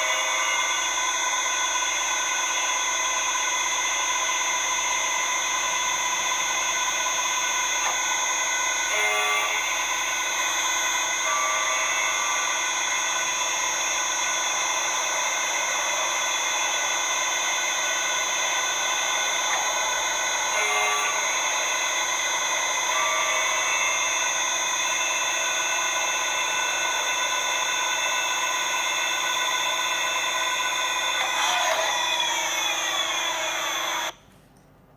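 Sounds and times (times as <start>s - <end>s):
lathe machine whine: 0.0s - 34.2s
cutting noise: 7.8s - 34.1s.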